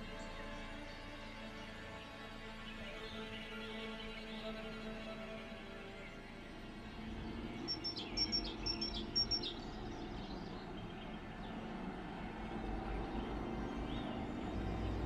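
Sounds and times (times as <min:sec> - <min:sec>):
songbird singing: 0:00.0 - 0:15.0
low outdoor rumble: 0:06.4 - 0:15.0.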